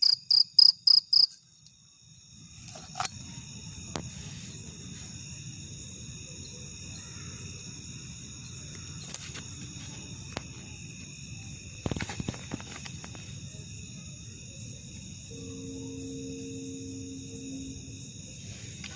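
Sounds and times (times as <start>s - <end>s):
shrill pulsing chirping: 15.2s - 18.8s.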